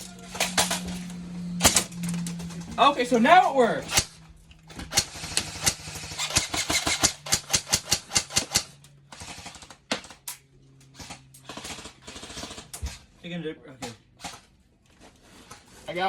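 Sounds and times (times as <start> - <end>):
steady low hum: 0.0 - 9.1
airsoft gun shots: 4.9 - 8.7.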